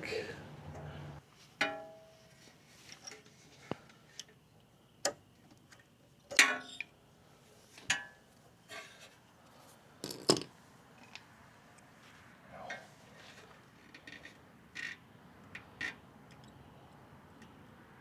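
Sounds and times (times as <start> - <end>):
small metal parts clicking: 10.0 - 10.5.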